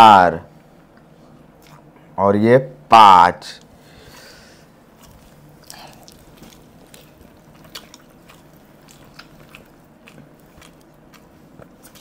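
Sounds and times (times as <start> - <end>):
man chewing with wet mouth clicks: 1.6 - 2.0, 4.9 - 12.0.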